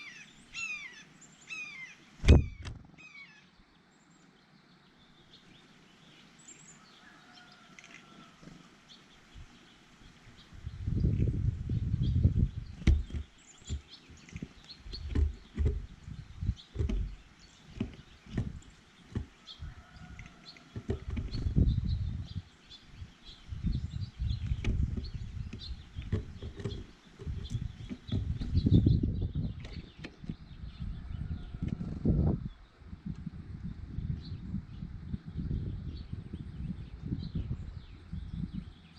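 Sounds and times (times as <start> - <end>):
small birds chirping: 0.0 - 38.9
sharp clicks and knocks: 12.8 - 16.1, 16.7 - 19.4, 20.2 - 21.6, 24.4 - 28.7.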